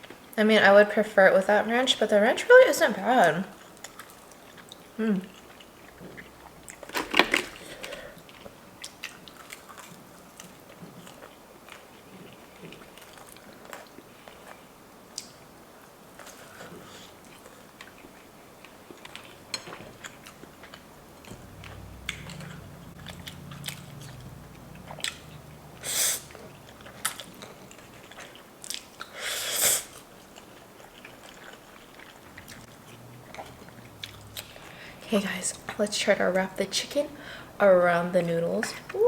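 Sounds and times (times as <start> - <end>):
person chewing and biting: 16.2 - 29.2, 29.9 - 34.7.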